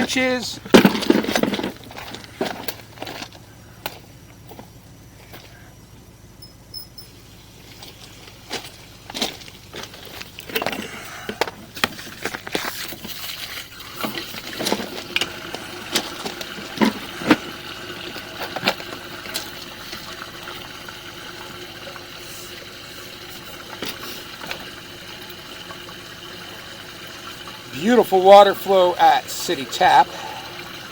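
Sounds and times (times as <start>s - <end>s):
water rushing through sewer: 7.6s - 30.9s.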